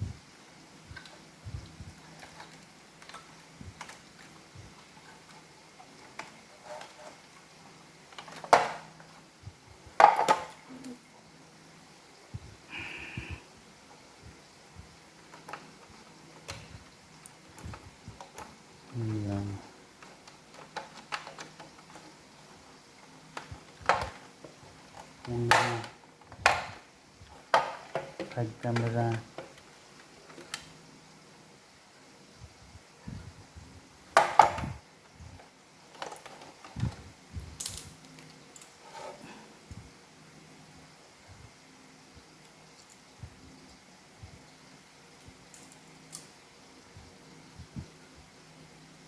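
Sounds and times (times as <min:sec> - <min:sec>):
plastic parts clicking and knocking: 0:02.0 - 0:04.4, 0:05.0 - 0:07.2, 0:08.1 - 0:09.2, 0:10.0 - 0:10.6, 0:15.2 - 0:18.6, 0:19.4 - 0:22.3, 0:23.0 - 0:30.8, 0:34.1 - 0:34.7, 0:35.4 - 0:37.0
small plastic parts clicking: 0:16.4 - 0:22.2.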